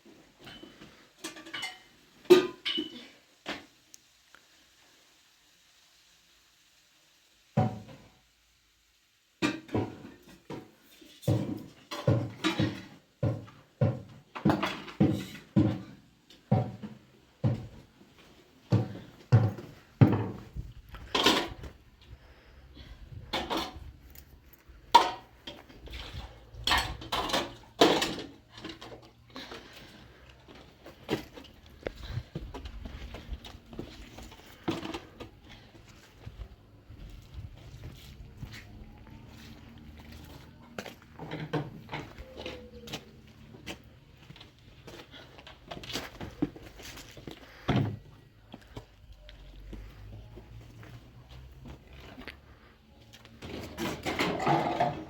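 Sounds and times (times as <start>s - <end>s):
kitchenware knocking and clattering: 0.5s - 3.0s, 53.8s - 55.0s.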